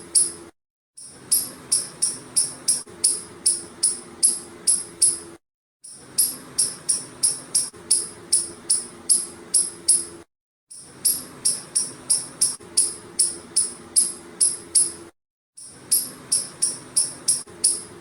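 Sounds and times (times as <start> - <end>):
squirrel chirping calls: 1.3 - 5.2, 11.0 - 14.9, 15.9 - 18.0.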